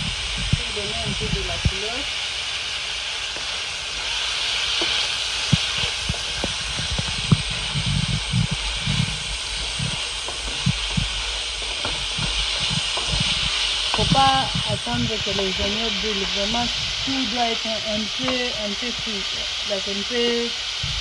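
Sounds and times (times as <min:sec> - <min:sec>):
vegetables sizzling in hot oil: 0:00.0 - 0:21.0
wooden spoon scraping a pan: 0:04.8 - 0:19.2.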